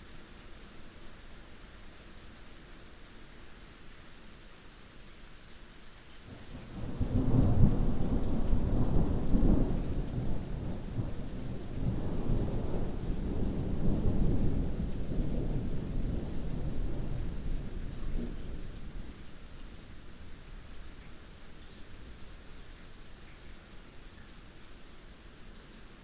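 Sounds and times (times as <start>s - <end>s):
rain falling: 0.0s - 26.0s
thunder rumbling: 6.6s - 19.6s.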